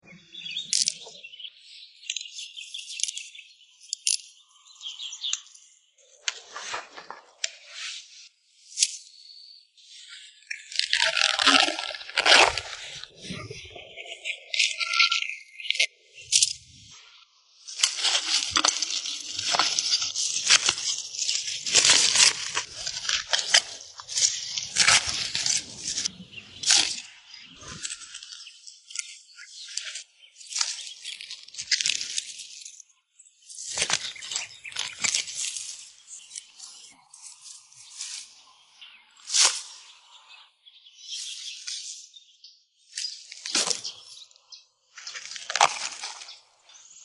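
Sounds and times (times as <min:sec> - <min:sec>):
small birds chirping: 0:00.0 - 0:10.8, 0:12.4 - 0:47.0
dry vegetation rustling and crackling: 0:06.1 - 0:07.8, 0:10.7 - 0:15.2, 0:17.7 - 0:32.7, 0:33.4 - 0:38.6, 0:43.0 - 0:47.0.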